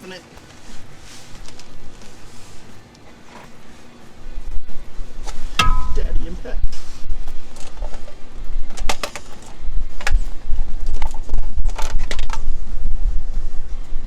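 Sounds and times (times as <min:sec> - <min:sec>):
steady low rumble: 0:03.7 - 0:08.8.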